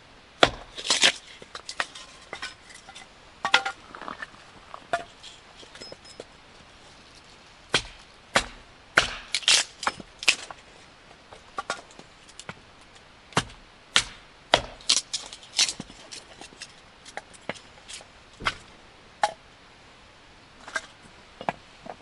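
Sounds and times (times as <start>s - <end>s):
firewood splitting knocks and cracks: 0.4s - 5.9s, 7.7s - 10.6s, 11.3s - 19.4s.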